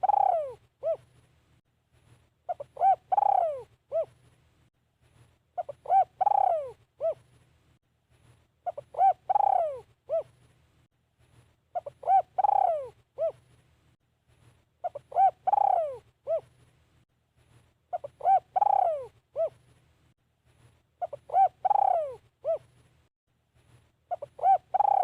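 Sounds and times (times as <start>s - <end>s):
dove cooing: 0.0s - 1.1s, 2.5s - 4.2s, 5.6s - 7.3s, 8.6s - 10.4s, 11.7s - 13.4s, 14.8s - 16.5s, 17.9s - 19.6s, 21.0s - 22.7s, 24.1s - 25.0s.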